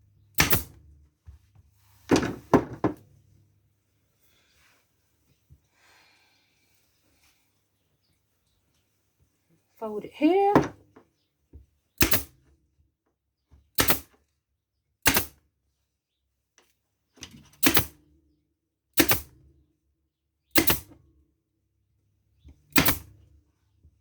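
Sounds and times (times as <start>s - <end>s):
staple gun snapping: 0.4s - 0.7s, 12.0s - 12.3s, 13.8s - 14.1s, 15.1s - 15.4s, 17.6s - 17.9s, 19.0s - 19.3s, 20.6s - 20.9s, 22.8s - 23.0s.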